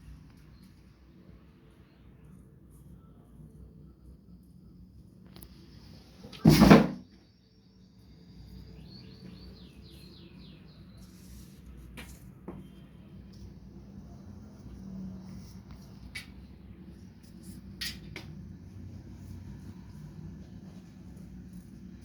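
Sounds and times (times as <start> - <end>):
loud knock or clatter: 6.4 - 7.0
bird chirping: 7.4 - 11.2.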